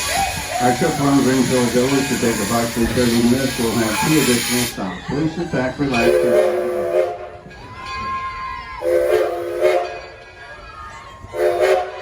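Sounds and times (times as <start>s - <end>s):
steam locomotive whistle: 0.0s - 5.0s, 5.9s - 7.6s, 8.7s - 10.2s, 11.3s - 12.0s
steam hissing: 0.0s - 7.4s, 8.8s - 10.0s.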